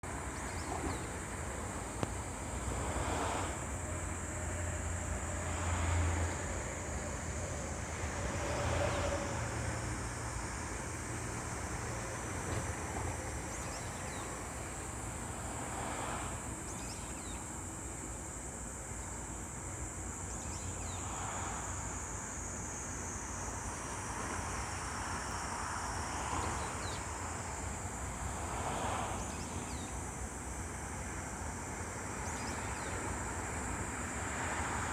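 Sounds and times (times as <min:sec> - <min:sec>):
steady high hiss: 0:09.3 - 0:34.9.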